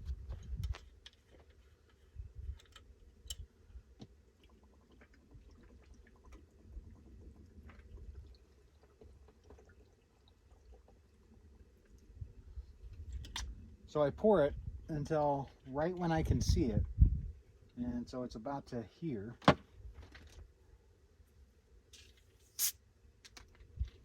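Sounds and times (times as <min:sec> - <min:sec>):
liquid pouring: 0:04.2 - 0:12.2.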